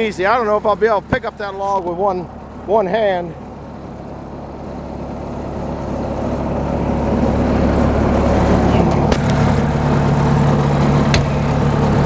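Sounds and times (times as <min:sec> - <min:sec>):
loader engine revving up: 0:06.1 - 0:12.0.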